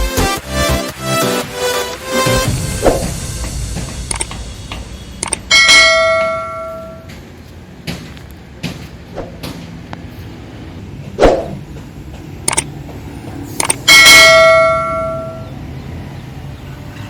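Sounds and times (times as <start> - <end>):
loud ringing metallic clang: 2.4 - 7.3, 13.8 - 15.6.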